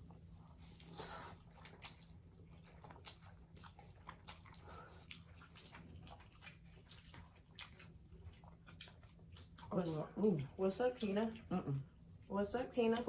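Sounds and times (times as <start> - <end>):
chewing: 0.0 - 13.0.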